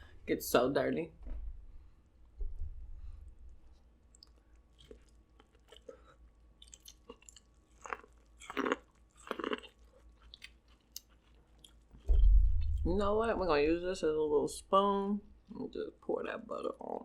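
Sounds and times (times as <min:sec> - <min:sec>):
person chewing food: 0:03.7 - 0:12.8
food crunching: 0:04.0 - 0:12.8.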